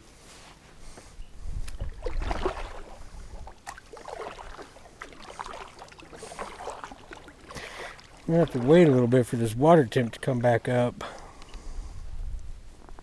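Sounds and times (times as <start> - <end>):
water splashing against kayak: 1.5 - 9.6.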